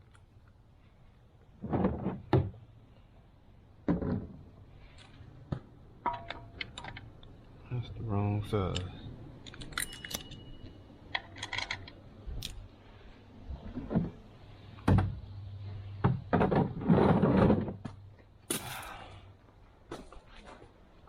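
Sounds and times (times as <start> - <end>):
metal hand tools clinking: 8.7 - 11.9
tools rattling and scraping: 8.8 - 12.6.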